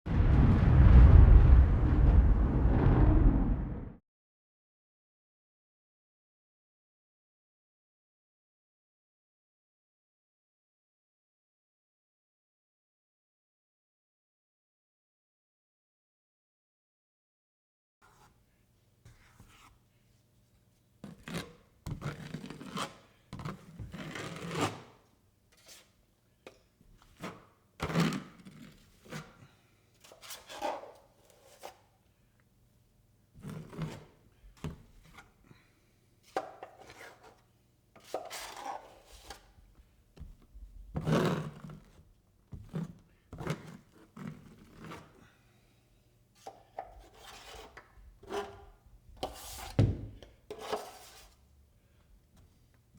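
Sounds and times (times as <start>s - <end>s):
drywall knife scraping compound: 21.0s - 32.1s, 33.3s - 45.7s, 46.4s - 52.6s.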